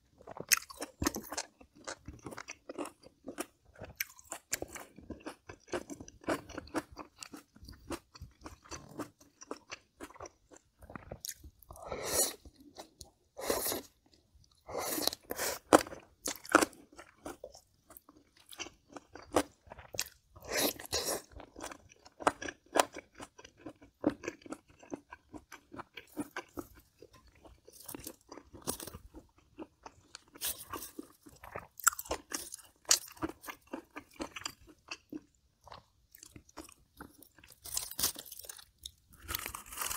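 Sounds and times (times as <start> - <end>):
soft chewing: 0.1 - 39.9.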